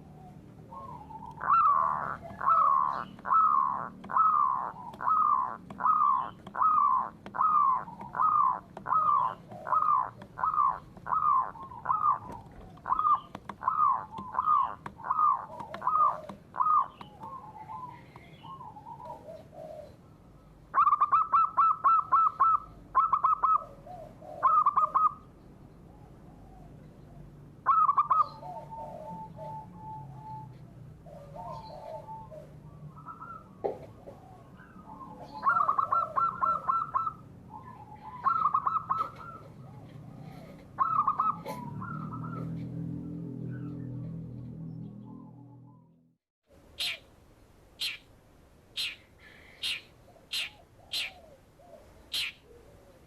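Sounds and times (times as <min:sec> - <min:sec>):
bird calling downslurred notes: 0:00.0 - 0:25.3, 0:27.6 - 0:46.0, 0:46.7 - 0:47.1, 0:47.8 - 0:48.1, 0:48.8 - 0:52.8
bird rapid harsh notes: 0:01.0 - 0:17.5, 0:46.8 - 0:47.0, 0:47.8 - 0:48.1, 0:48.8 - 0:51.2, 0:52.1 - 0:52.4.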